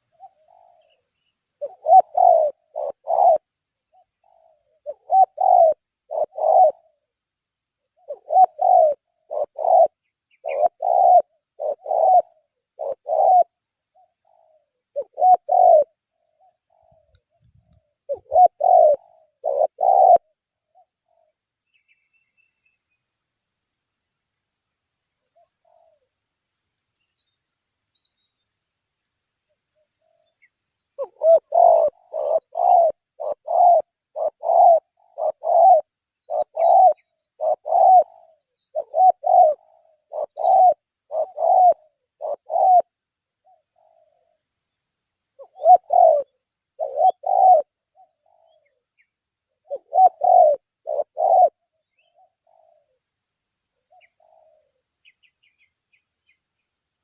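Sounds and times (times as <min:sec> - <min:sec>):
dove cooing: 0:00.0 - 0:07.2, 0:07.8 - 0:22.0, 0:25.3 - 0:26.2, 0:31.0 - 0:44.4, 0:45.4 - 0:53.1, 0:53.8 - 0:55.6.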